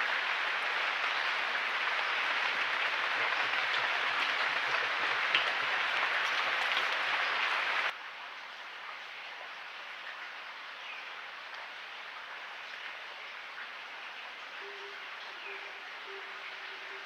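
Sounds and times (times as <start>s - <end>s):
dense crackling hiss: 0.0s - 9.6s.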